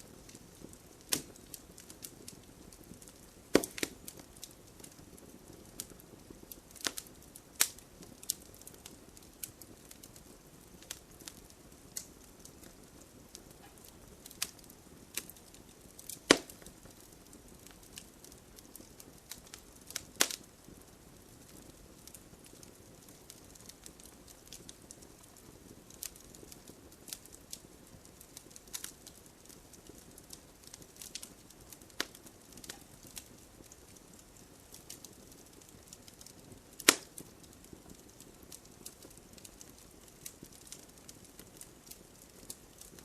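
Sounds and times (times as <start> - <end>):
fire crackling and popping: 0.0 - 43.0
soft fire hiss: 0.0 - 43.0.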